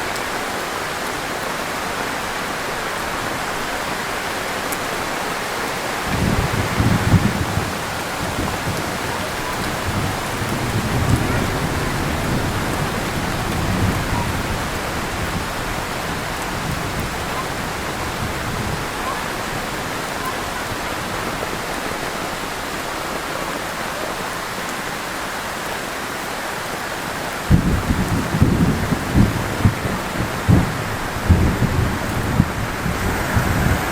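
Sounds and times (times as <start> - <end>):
heavy rain hissing: 0.0 - 33.9.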